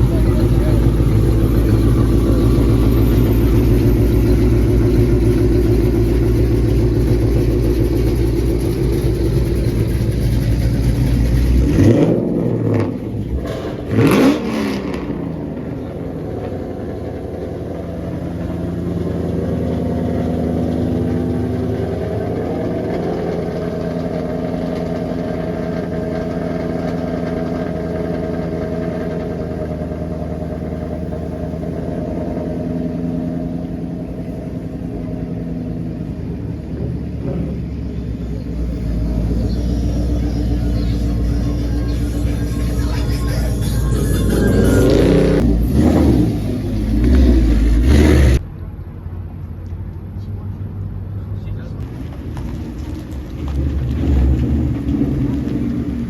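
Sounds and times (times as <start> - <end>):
engine revving: 0.0 - 33.8, 38.4 - 48.4
car engine rumbling: 0.0 - 56.0.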